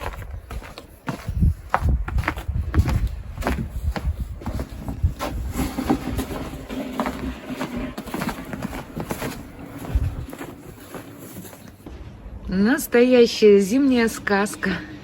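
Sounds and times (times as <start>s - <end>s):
wind rumble on microphone: 0.0s - 11.0s
crunches and scrapes in snow: 0.0s - 11.9s.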